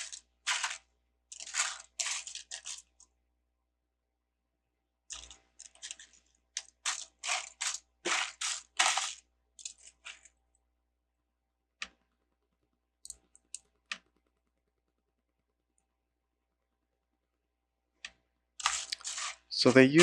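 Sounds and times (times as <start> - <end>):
plastic pieces clattering: 0.0 - 3.0, 5.1 - 10.2, 18.6 - 20.0.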